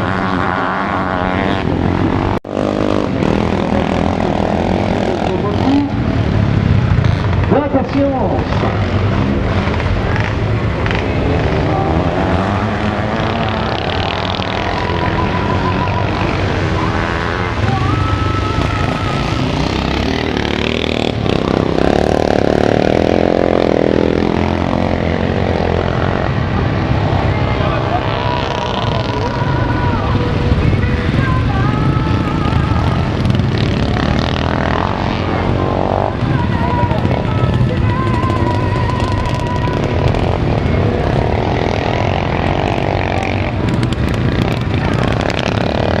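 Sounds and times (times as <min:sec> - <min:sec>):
motocross motorcycle engines revving: 0:00.0 - 0:46.0.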